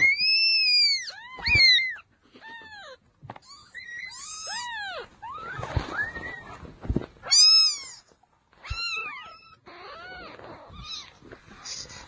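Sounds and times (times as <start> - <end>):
cat meowing: 0.0 - 6.5.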